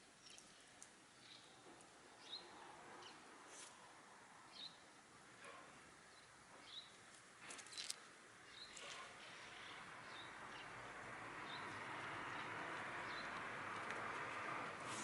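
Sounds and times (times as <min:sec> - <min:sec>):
small bird chirping: 0:00.2 - 0:00.6.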